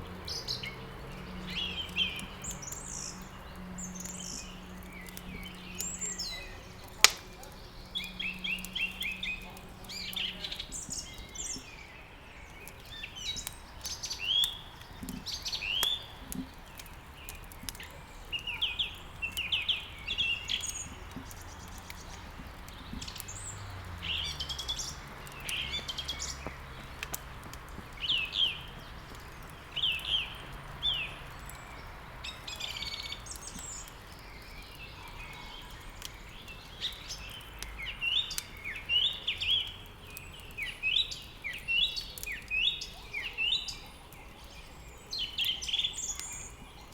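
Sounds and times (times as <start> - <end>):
songbirds chirping: 0.0 - 46.9
wood fire crackling: 0.0 - 46.9.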